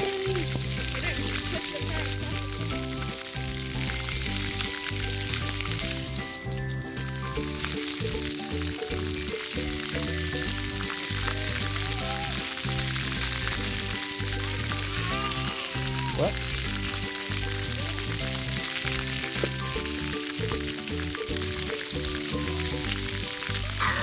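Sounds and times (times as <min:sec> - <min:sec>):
background music: 0:00.0 - 0:24.0
water jets spraying: 0:00.0 - 0:24.0.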